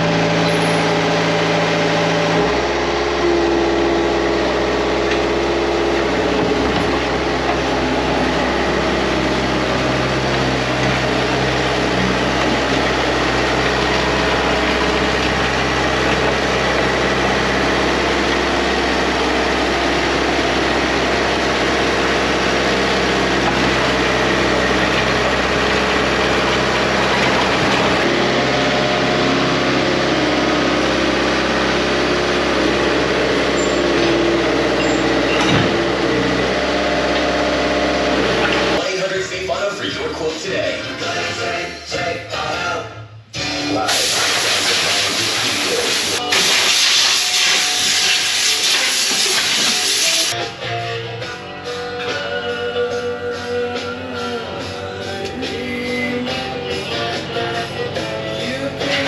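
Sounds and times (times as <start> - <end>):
engine idling: 0.0 - 38.8.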